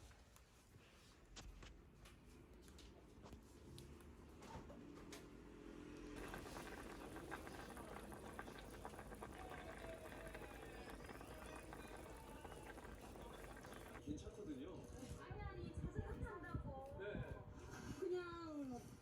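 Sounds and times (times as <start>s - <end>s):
food bubbling and crackling: 6.2s - 14.0s.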